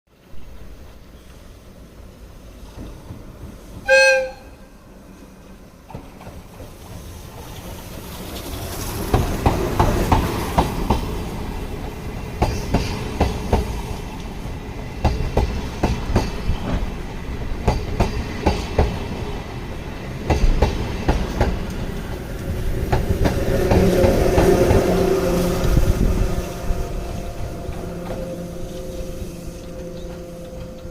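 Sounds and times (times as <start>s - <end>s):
short horn toot: 3.9s - 4.6s.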